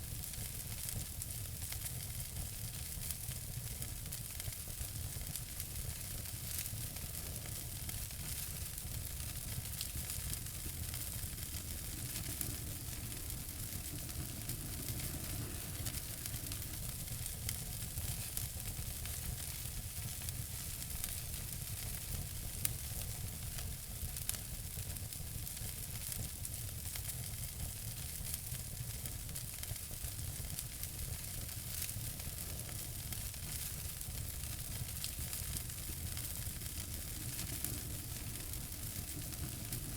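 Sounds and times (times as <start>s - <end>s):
wood fire crackling: 0.0s - 39.9s
fire pops: 5.3s - 22.8s, 28.0s - 39.9s.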